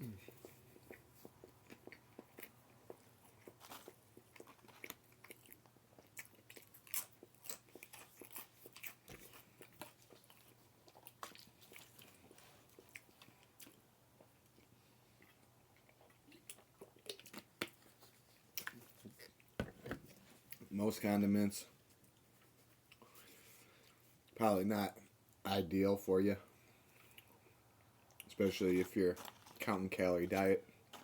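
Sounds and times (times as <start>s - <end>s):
person crunching and chewing: 0.2s - 19.5s.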